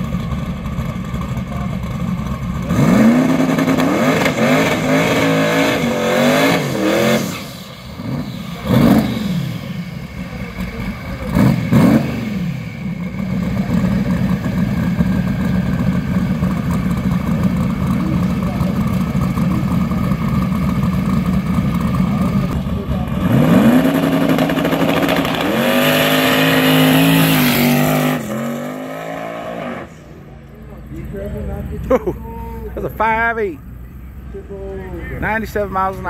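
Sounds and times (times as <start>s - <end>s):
engines idling: 0.0s - 36.0s
engine revving: 1.4s - 30.2s
drag car accelerating through gears: 2.6s - 15.4s, 21.7s - 30.1s.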